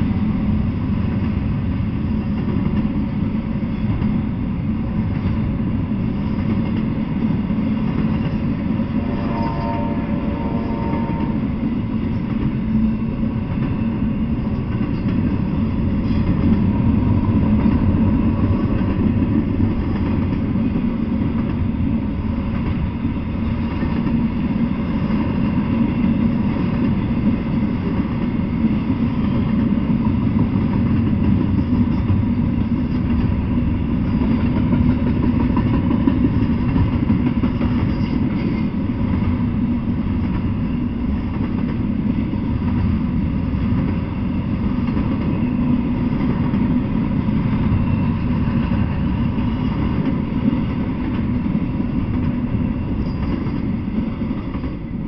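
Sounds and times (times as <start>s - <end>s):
freight train rumbling on tracks: 0.0s - 55.0s
brief higher tone: 9.0s - 11.5s.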